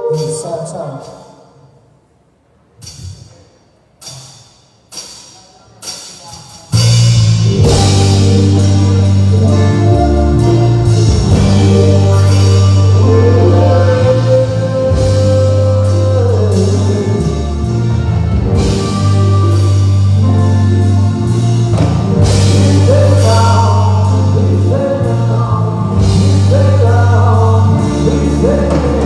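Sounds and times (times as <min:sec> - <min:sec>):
rock song through loudspeakers: 0:05.8 - 0:29.0.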